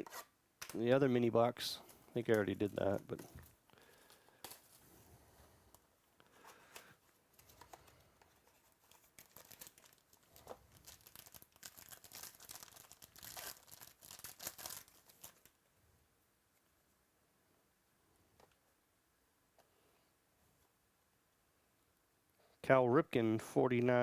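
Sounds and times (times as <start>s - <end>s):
card packaging tearing and crinkling: 8.5s - 15.6s.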